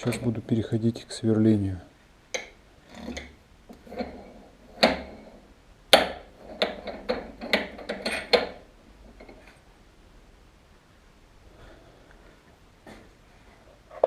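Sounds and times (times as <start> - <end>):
metal tools clinking and knocking: 6.4 - 8.6.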